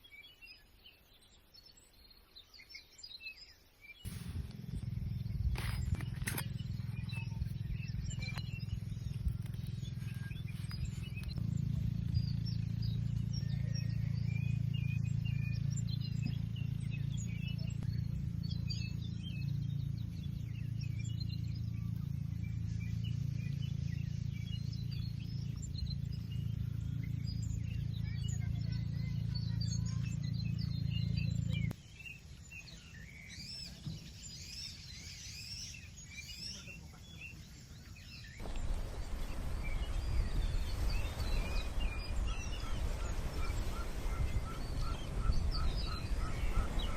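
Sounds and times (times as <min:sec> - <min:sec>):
small birds chirping: 0:00.0 - 0:46.9
low hum: 0:04.1 - 0:31.8, 0:38.4 - 0:46.9.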